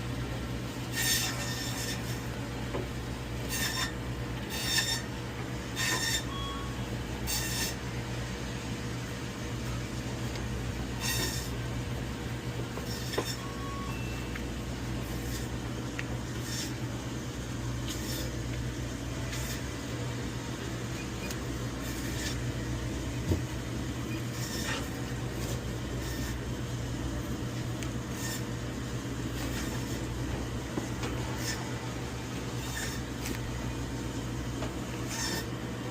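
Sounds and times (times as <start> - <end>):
steady machine hum: 0.0 - 35.9
knife slicing meat: 15.0 - 15.5, 16.4 - 16.8, 17.9 - 18.3.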